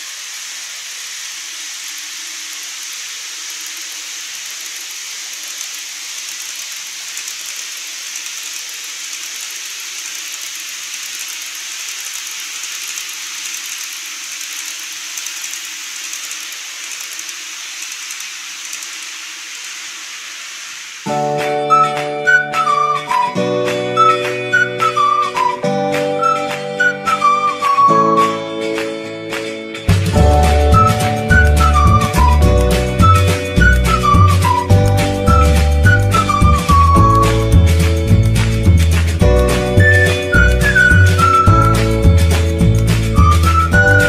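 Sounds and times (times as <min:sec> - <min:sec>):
faint motor hum: 0:00.0 - 0:21.1
model trains rolling on track: 0:00.0 - 0:21.1, 0:29.9 - 0:44.0
music: 0:21.1 - 0:44.0.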